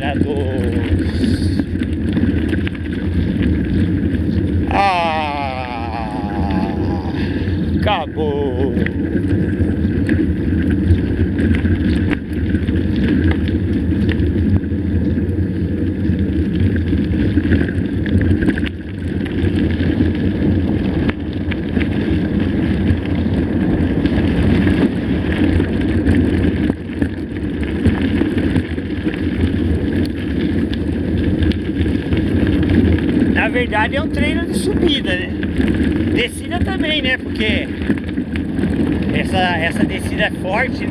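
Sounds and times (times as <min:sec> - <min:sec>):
bike clicks and rattles: 0:00.0 - 0:07.0, 0:08.8 - 0:40.9
tyres rumbling on dirt: 0:00.0 - 0:40.9
wind buffeting microphone: 0:00.0 - 0:40.9.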